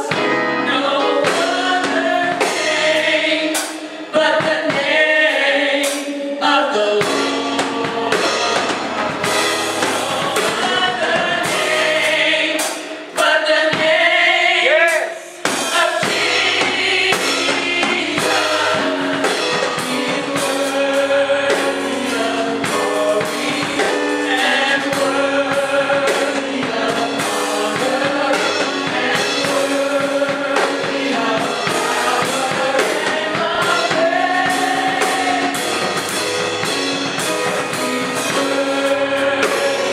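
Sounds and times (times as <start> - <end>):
band with drum kit: 0.0 - 39.9
gospel choir singing: 0.0 - 39.9.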